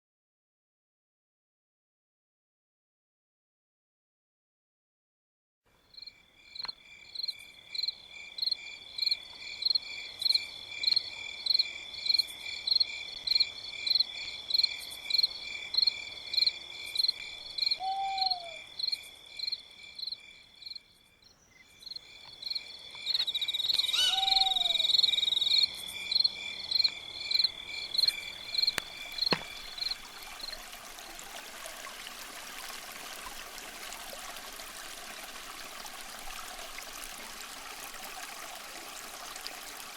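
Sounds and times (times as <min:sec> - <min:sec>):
low falling animal calls: 0:17.7 - 0:18.7, 0:23.7 - 0:25.3
high animal chirps: 0:23.8 - 0:25.0
stream rushing: 0:27.6 - 0:39.9.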